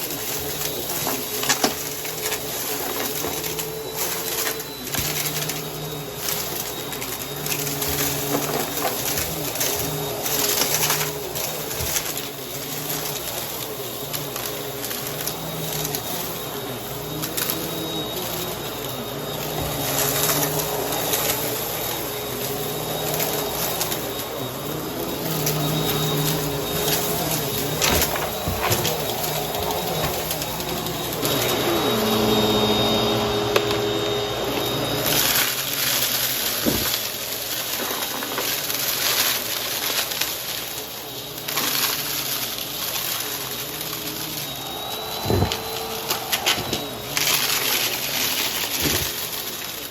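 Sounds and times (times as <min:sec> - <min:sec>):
debris crackling in vacuum: 0:00.0 - 0:49.9
vacuum cleaner motor humming: 0:00.0 - 0:49.9.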